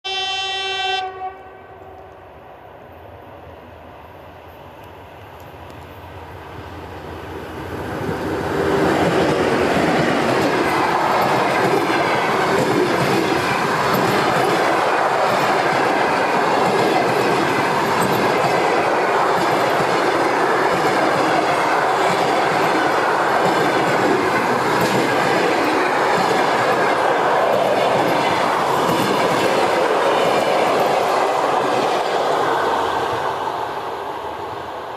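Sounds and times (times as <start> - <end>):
train rushing past: 0.1 - 34.9
train wheels clacking over rails: 8.0 - 33.4.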